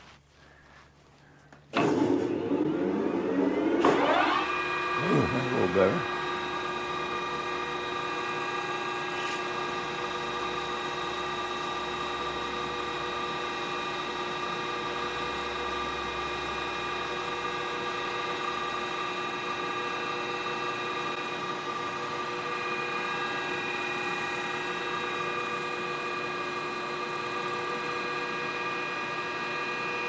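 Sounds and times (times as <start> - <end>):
machine tool whining: 1.7 - 6.3.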